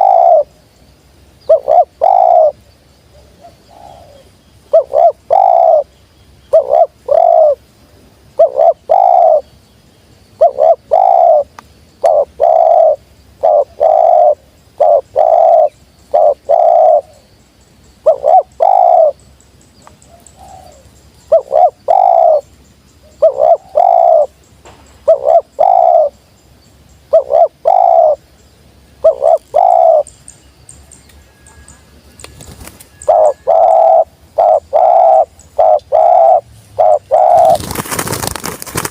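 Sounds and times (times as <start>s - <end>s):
dove cooing: 0.0s - 0.6s, 1.4s - 5.9s, 6.5s - 7.6s, 8.4s - 9.5s, 10.4s - 17.3s, 18.0s - 19.2s, 20.1s - 22.5s, 23.1s - 24.4s, 25.0s - 26.2s, 27.1s - 28.2s, 29.0s - 30.1s, 32.6s - 38.9s.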